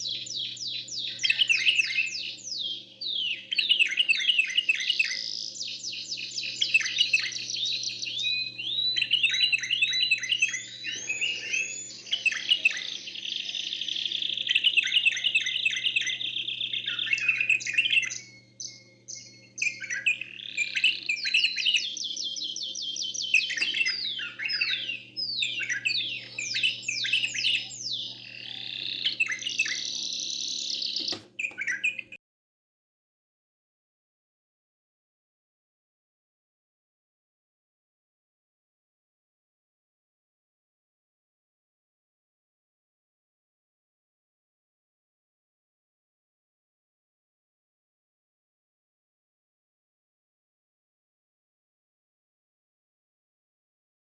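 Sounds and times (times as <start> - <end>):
birds singing fast trills: 0.0 - 32.2
steady low hum: 6.1 - 22.2.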